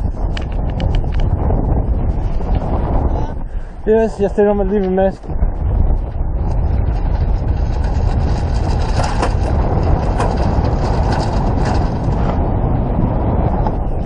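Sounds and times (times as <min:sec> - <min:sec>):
crackles: 0:00.0 - 0:12.6
wind buffeting microphone: 0:00.0 - 0:14.0.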